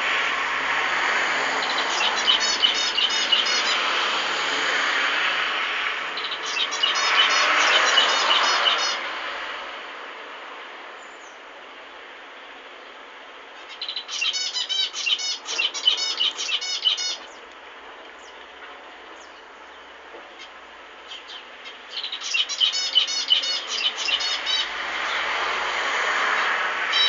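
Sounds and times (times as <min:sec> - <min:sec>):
finches singing and chirping: 0:01.6 - 0:03.8, 0:06.2 - 0:09.0, 0:13.7 - 0:17.4, 0:21.1 - 0:24.7.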